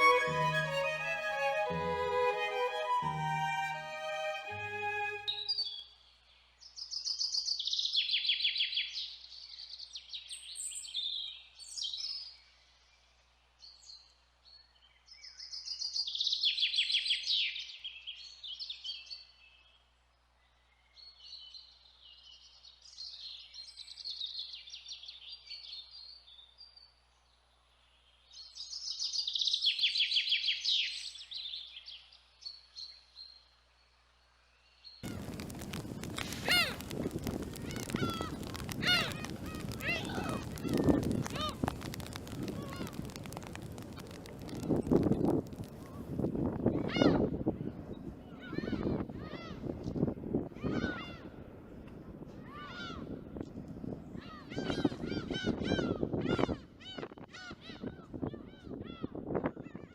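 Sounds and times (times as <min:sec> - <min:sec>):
songbird chirping: 0:00.0 - 0:05.8.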